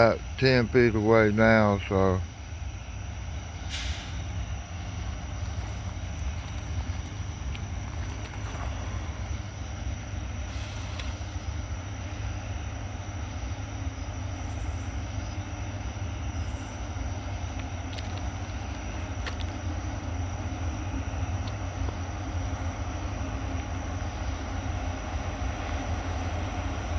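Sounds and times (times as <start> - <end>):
freight train rumbling past: 0.0 - 26.9.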